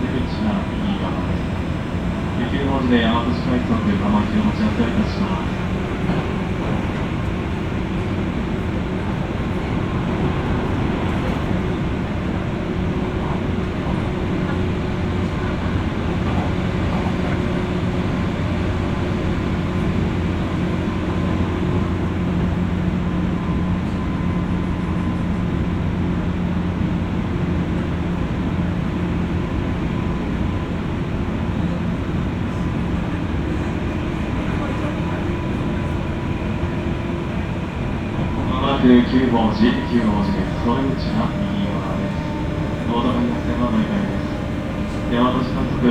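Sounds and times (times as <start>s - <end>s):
train wheels rumbling on rail: 0.0s - 45.9s
electrical hum: 38.5s - 45.9s.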